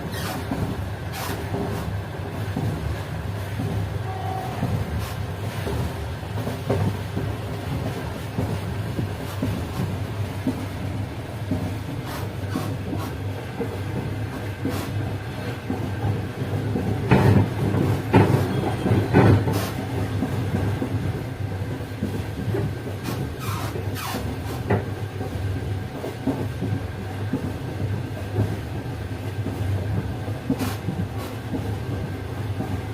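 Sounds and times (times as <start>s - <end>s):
train rumbling on track: 0.0s - 32.9s
wheels clattering over rail joints: 4.6s - 21.4s, 22.0s - 25.0s.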